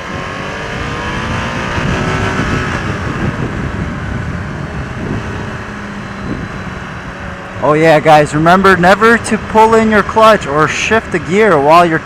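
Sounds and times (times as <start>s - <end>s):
wind rush over microphone: 0.0s - 7.2s
motorcycle engine accelerating: 0.0s - 11.2s.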